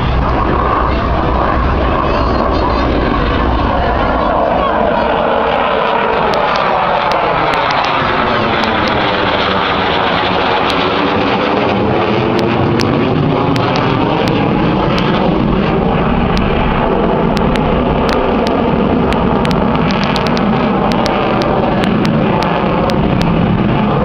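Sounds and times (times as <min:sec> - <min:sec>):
aircraft engine noise: 0:00.0 - 0:24.0.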